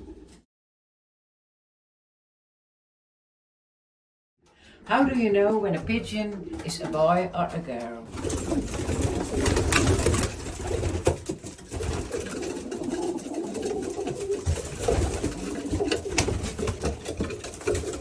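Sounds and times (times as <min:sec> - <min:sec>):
pigeons cooing: 0:08.1 - 0:18.0.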